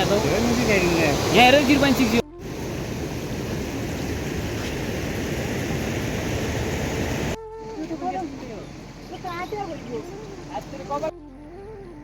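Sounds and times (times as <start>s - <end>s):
heavy rain: 0.0s - 7.4s.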